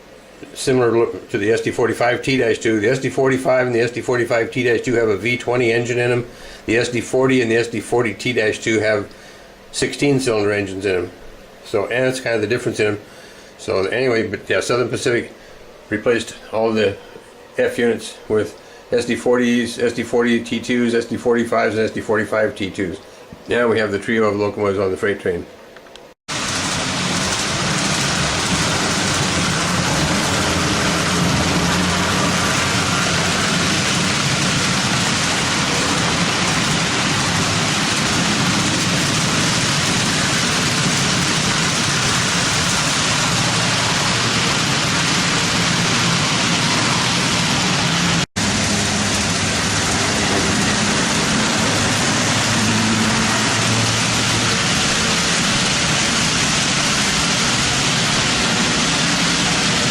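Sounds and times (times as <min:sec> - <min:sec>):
wheels rattling on rail: 0:26.3 - 0:59.9
low motor hum: 0:26.4 - 0:59.9.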